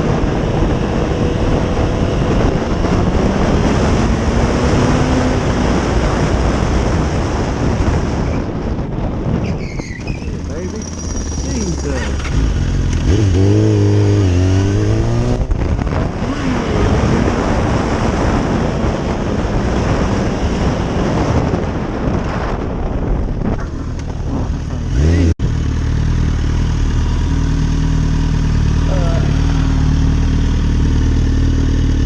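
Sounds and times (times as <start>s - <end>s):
motorcycle engine revving: 0.0s - 8.6s, 9.8s - 32.0s
wind rush: 0.0s - 25.4s.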